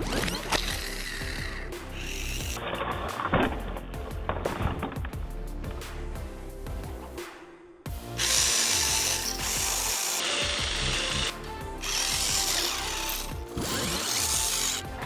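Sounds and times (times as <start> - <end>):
electric toy car motor whirring: 0.0 - 2.6, 8.2 - 14.9
background music: 0.0 - 15.0.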